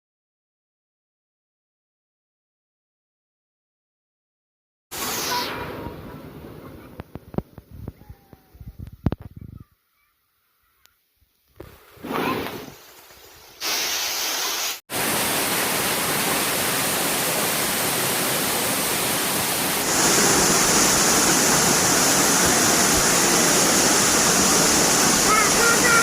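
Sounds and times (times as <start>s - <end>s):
waterfall rushing: 13.6s - 26.0s.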